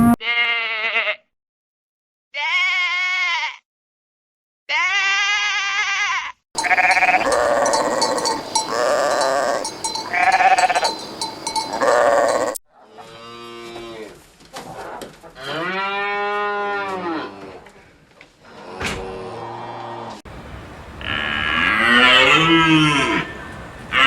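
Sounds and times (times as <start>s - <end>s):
sheep bleating: 0.0s - 1.3s, 2.4s - 3.6s, 4.7s - 11.0s, 11.6s - 12.6s
animal drawn-out calls: 6.6s - 12.6s, 21.0s - 24.0s
bells clanking: 6.6s - 12.6s.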